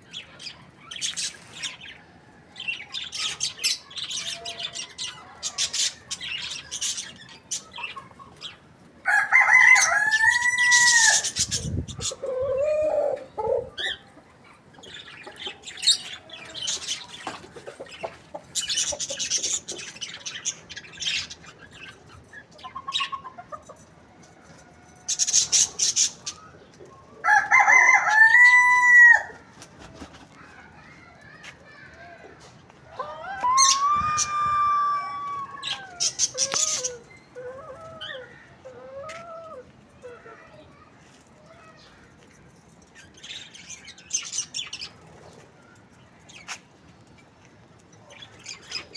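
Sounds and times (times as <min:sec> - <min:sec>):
rooster crowing: 0:09.0 - 0:11.3, 0:27.2 - 0:29.4, 0:32.9 - 0:36.1.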